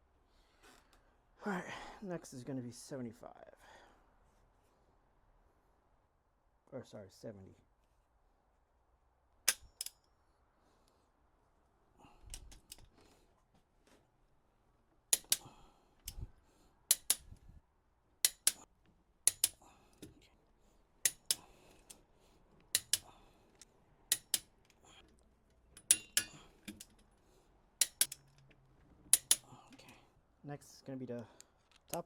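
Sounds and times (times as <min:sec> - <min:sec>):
torque wrench clicking: 0:15.1 - 0:16.2, 0:16.9 - 0:17.3, 0:18.2 - 0:18.6, 0:19.2 - 0:20.1, 0:21.0 - 0:22.0, 0:22.6 - 0:24.8, 0:25.8 - 0:27.0, 0:27.8 - 0:28.4, 0:29.1 - 0:29.5.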